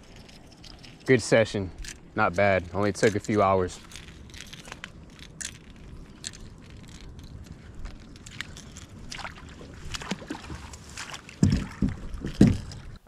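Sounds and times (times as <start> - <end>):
water sloshing around kayak: 2.8 - 13.0.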